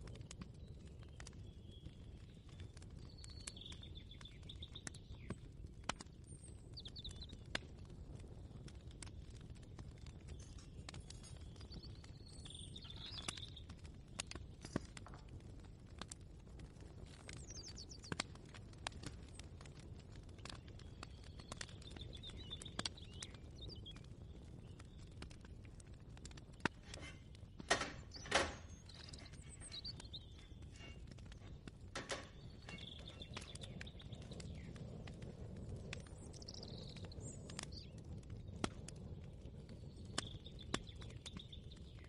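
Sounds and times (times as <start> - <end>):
birds chirping: 0.0 - 5.6, 9.9 - 15.0, 20.3 - 25.4, 26.2 - 38.6
light clicks and knocks: 26.6 - 33.5.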